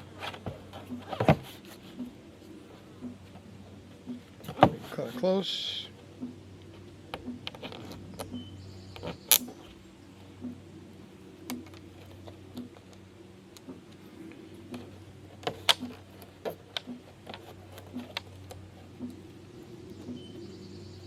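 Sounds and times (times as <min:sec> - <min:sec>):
plastic clicks and taps on pipe: 0:00.4 - 0:02.2, 0:03.0 - 0:03.4, 0:04.0 - 0:05.3, 0:06.2 - 0:09.6, 0:10.4 - 0:10.6, 0:11.5 - 0:14.0, 0:14.7 - 0:19.3.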